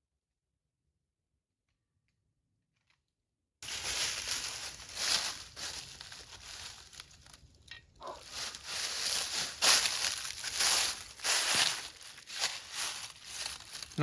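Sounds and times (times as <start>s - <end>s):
rustling crinkling noise: 3.6s - 14.0s.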